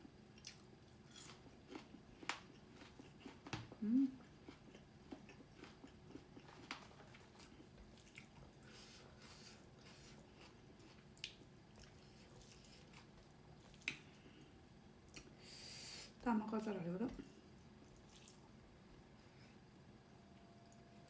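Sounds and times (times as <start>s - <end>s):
person chewing: 0.4s - 3.5s, 4.2s - 14.1s, 17.9s - 18.5s.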